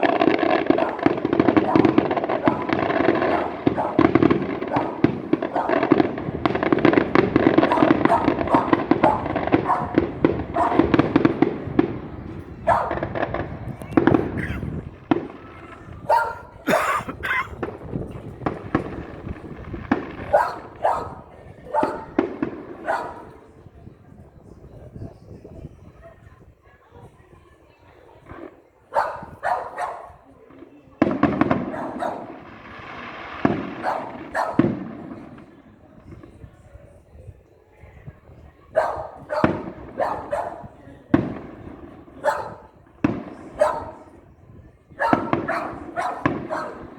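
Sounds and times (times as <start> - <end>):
firecrackers banging: 0.0 - 23.6, 30.3 - 36.5, 39.2 - 44.4, 45.0 - 46.9
dog barking: 0.8 - 5.9, 7.6 - 10.0, 10.6 - 10.9, 12.7 - 13.1, 14.3 - 14.8, 16.0 - 17.5, 20.3 - 22.2, 22.8 - 23.4, 28.9 - 30.2, 31.6 - 32.4, 33.8 - 34.7, 38.7 - 40.7, 42.2 - 42.7, 43.5 - 44.0, 45.0 - 46.9.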